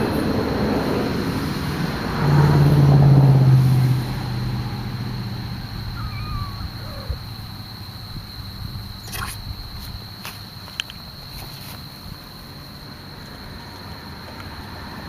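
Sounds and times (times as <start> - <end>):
vehicle engine hum: 0.0 - 10.2.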